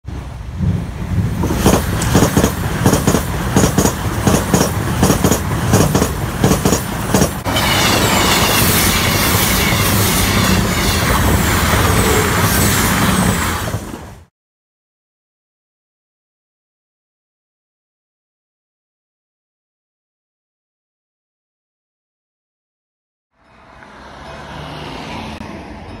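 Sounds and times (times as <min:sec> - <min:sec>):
rush of passing train: 0:00.0 - 0:14.3, 0:23.4 - 0:26.0
train wheels clattering over joints: 0:01.4 - 0:14.0.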